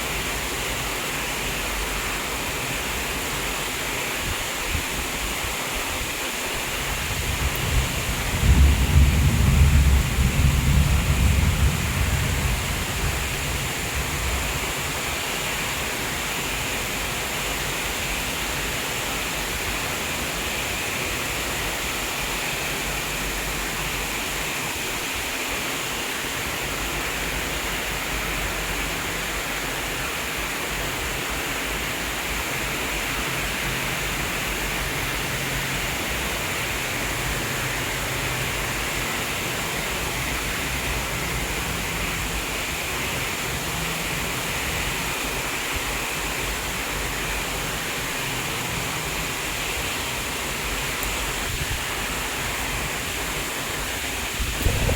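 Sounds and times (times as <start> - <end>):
heavy rain hissing: 0.0 - 54.9
low rumble: 54.6 - 54.9.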